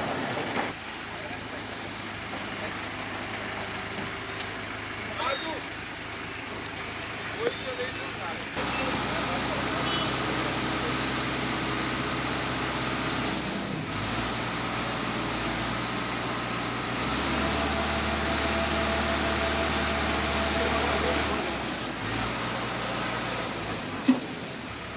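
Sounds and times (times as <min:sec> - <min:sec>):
road noise: 0:00.0 - 0:24.9
vehicle engine drone: 0:01.6 - 0:24.9.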